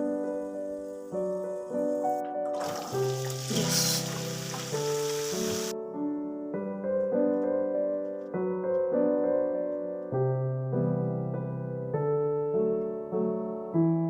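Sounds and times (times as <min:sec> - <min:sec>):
steady hiss: 0:00.0 - 0:05.7
soft piano chords: 0:00.0 - 0:14.0.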